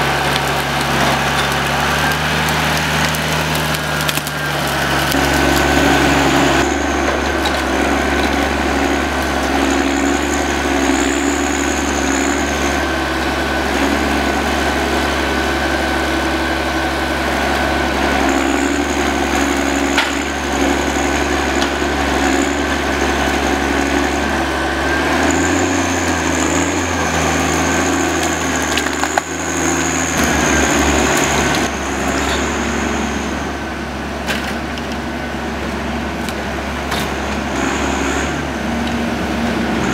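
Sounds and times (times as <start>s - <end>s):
high whine: 0.0s - 34.1s
diesel engine running: 0.0s - 39.9s.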